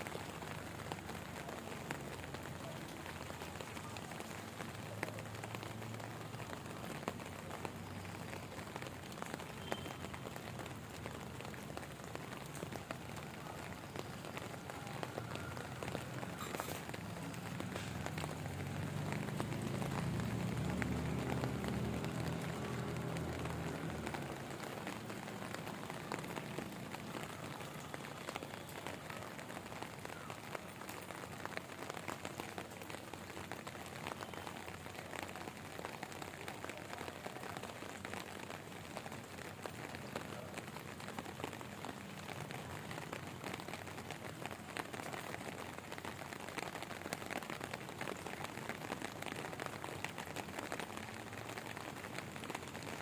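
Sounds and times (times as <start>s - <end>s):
rain falling: 0.0s - 53.0s
raindrop hits: 0.0s - 53.0s.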